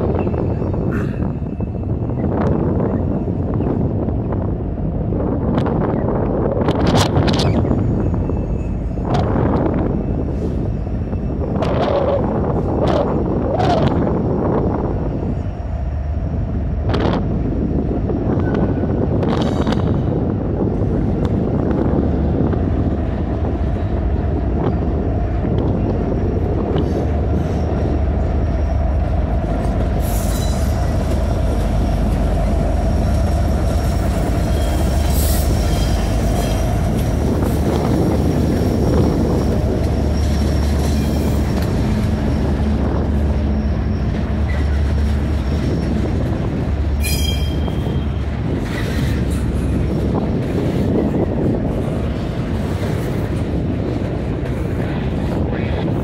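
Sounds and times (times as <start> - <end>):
locomotive engines humming: 0.0 - 56.0
train wheels on rails: 0.0 - 56.0
wheel squeals: 38.5 - 46.4, 47.0 - 49.4.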